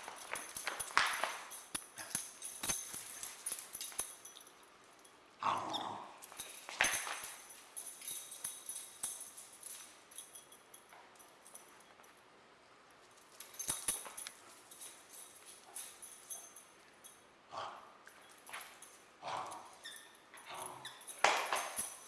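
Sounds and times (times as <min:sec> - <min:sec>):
light jingling: 0:00.0 - 0:22.0.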